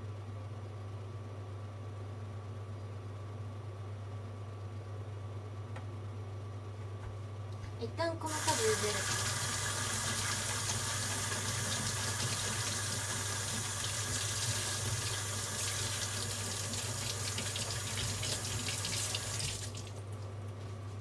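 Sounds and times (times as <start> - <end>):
tap running water: 8.3 - 20.3.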